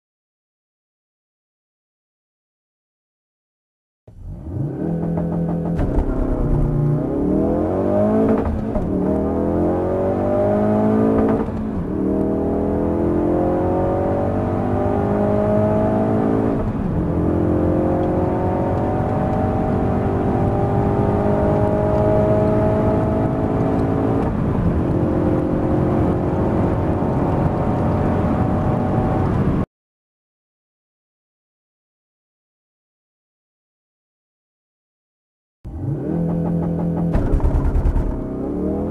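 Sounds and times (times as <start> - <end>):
car engine accelerating through gears: 4.1 - 29.6, 35.7 - 38.9.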